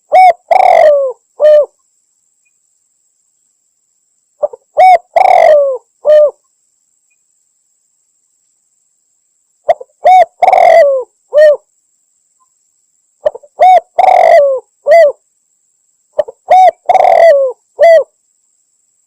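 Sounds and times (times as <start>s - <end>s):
dove cooing: 0.0s - 1.8s, 4.4s - 6.4s, 9.7s - 11.6s, 13.2s - 15.2s, 16.2s - 18.1s.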